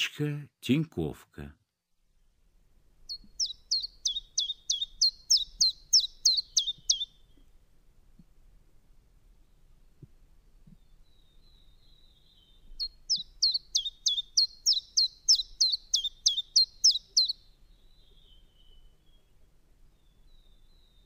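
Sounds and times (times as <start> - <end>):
chiffchaff singing: 3.1 - 7.1, 12.8 - 17.4.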